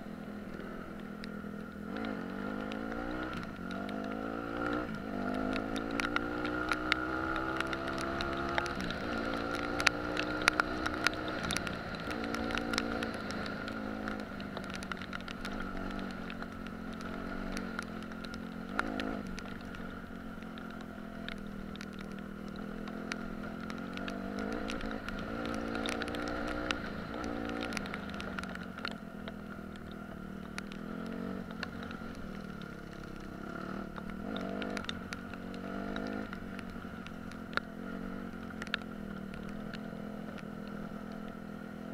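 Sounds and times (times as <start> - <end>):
sharp clicks and knocks: 0.9 - 41.4.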